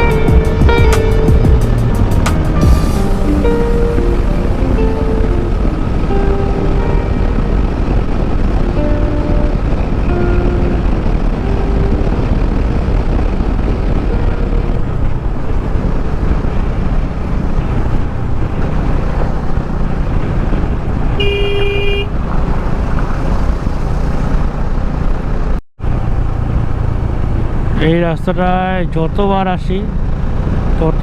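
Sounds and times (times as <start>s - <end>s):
wind rush: 0.0s - 28.1s
motorcycle engine: 0.0s - 31.0s
vehicle horn honking: 21.1s - 23.4s.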